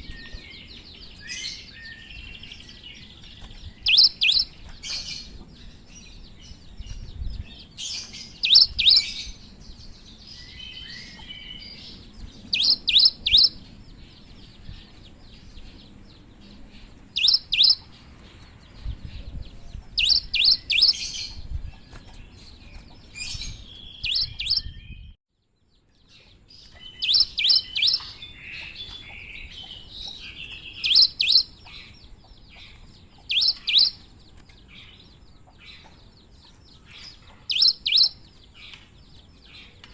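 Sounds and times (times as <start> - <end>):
soft bird chirps: 0.0 - 39.9
bird singing sharp high notes: 37.5 - 38.2.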